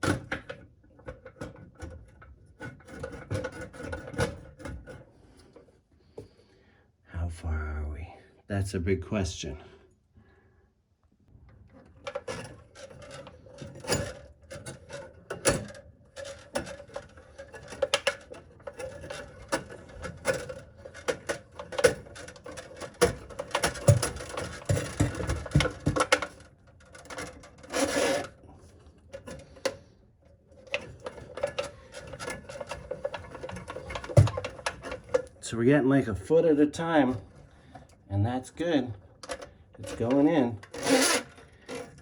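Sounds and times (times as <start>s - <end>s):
drain snake cable clicking and scraping: 11.6s - 35.5s, 38.6s - 42.0s.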